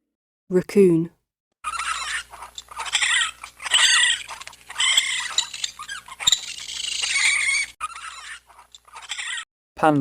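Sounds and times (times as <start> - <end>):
raccoon chittering: 1.6 - 9.4.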